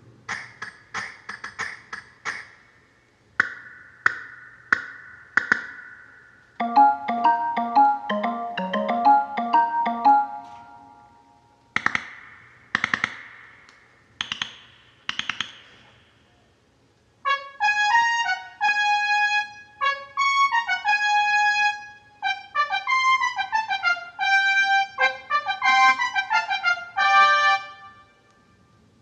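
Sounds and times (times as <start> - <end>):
synthesized brass melody: 17.2 - 28.3.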